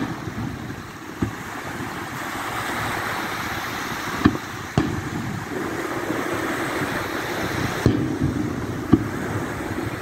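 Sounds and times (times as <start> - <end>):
firework shells booming: 0.0 - 2.0, 4.0 - 10.0
lake waves: 0.0 - 10.0
wind: 0.0 - 10.0.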